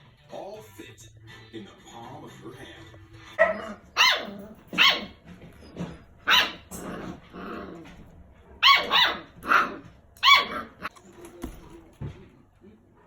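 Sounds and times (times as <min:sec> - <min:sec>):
dog barking: 0:03.4 - 0:05.2, 0:06.2 - 0:07.7, 0:08.5 - 0:10.9.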